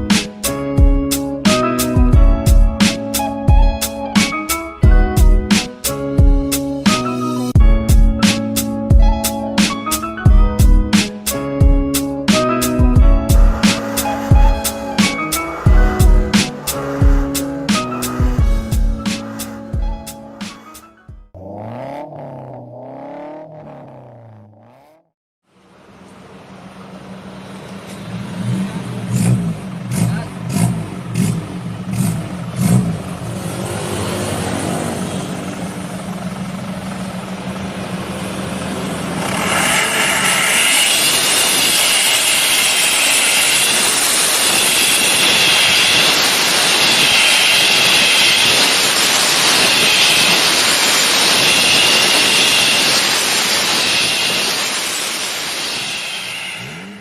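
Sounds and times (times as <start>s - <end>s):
engine revving with racing exhaust: 11.0s - 25.1s, 27.4s - 40.5s
high exhaust whistle: 12.6s - 21.0s, 40.6s - 57.0s.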